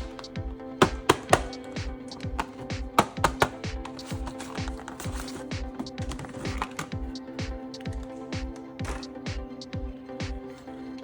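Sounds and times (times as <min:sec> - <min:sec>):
kick drum beat: 0:00.0 - 0:04.3
electronic music: 0:00.0 - 0:11.0.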